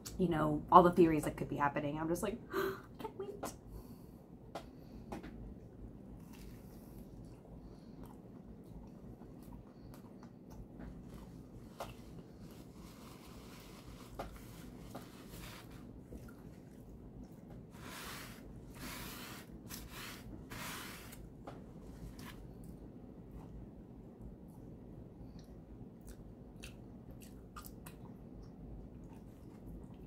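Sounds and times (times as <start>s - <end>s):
person chewing: 6.1s - 17.6s, 25.3s - 30.0s.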